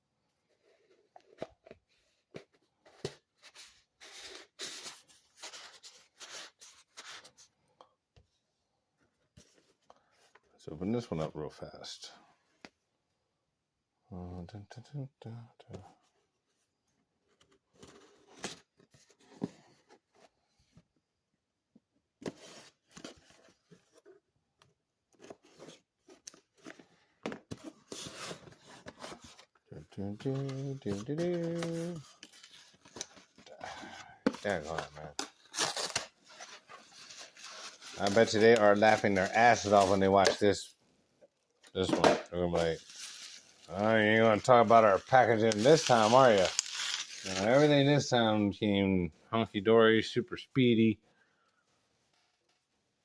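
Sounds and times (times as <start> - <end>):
packaging rustling: 27.6 - 40.5, 42.6 - 47.8.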